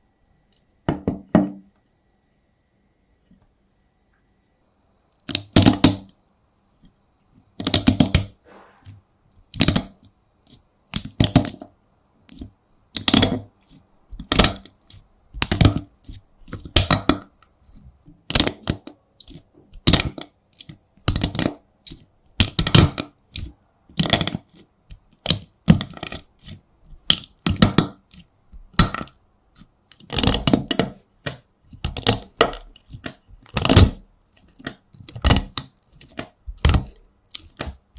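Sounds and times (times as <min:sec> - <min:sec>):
hard wax cracking: 0:18.2 - 0:37.9.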